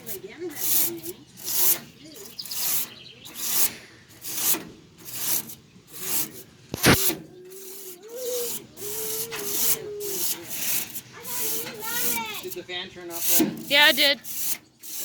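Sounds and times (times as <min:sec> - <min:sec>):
brush scrubbing metal fins: 0:00.0 - 0:15.0.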